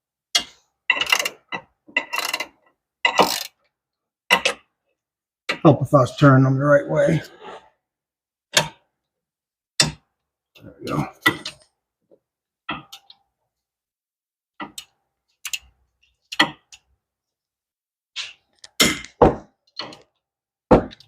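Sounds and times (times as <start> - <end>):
ratchet clicking and knocking: 0.4 - 3.6.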